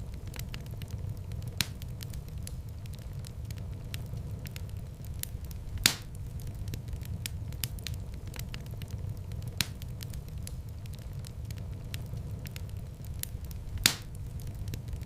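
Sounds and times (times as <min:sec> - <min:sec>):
fire crackling: 0:00.0 - 0:15.0
fire flames rumbling: 0:00.0 - 0:15.0
loud wood pops: 0:05.8 - 0:06.2, 0:13.8 - 0:14.2.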